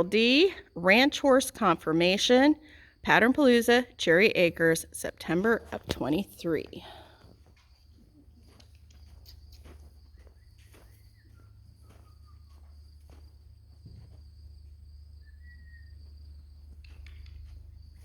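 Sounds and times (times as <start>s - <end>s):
soft footsteps: 5.3s - 18.0s
high insect drone: 6.4s - 18.0s.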